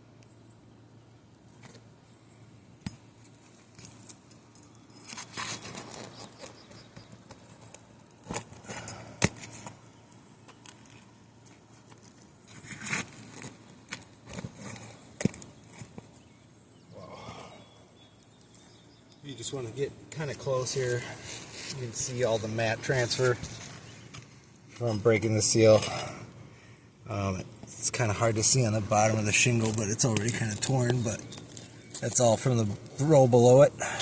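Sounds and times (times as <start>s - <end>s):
roof shingles scraping and crackling: 5.0s - 9.8s, 10.6s - 16.3s, 27.6s - 33.6s.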